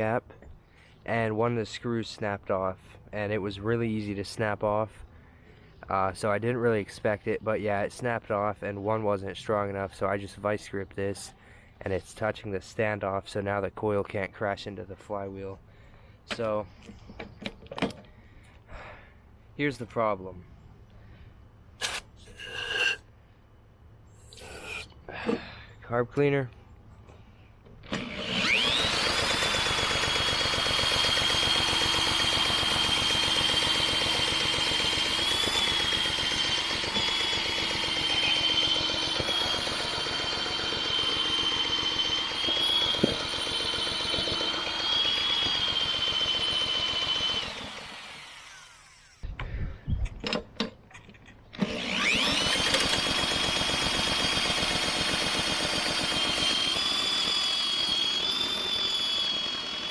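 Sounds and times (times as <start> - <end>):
power drill whining: 27.8 - 49.2, 51.6 - 59.9
lawnmower engine chugging: 27.9 - 48.0.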